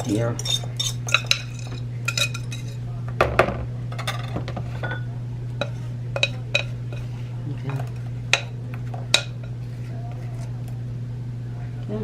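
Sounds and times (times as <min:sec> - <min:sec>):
utensil scraping a bowl: 0:00.0 - 0:02.8, 0:05.6 - 0:10.6
steady low hum: 0:00.0 - 0:12.0.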